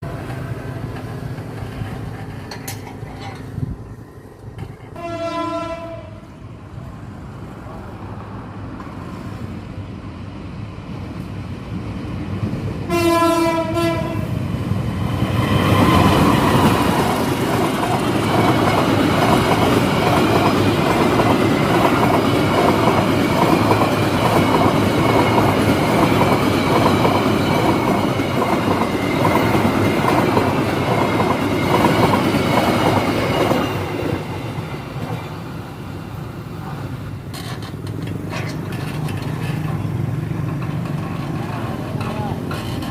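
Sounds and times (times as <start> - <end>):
train wheels clattering on rails: 0.0 - 3.7, 14.9 - 35.4, 36.6 - 42.9
train horn blast: 4.9 - 6.2, 12.9 - 14.3.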